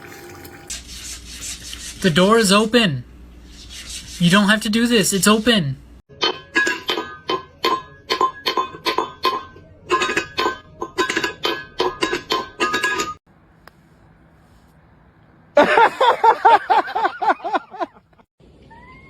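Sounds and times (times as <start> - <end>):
cat crying: 18.6 - 19.0.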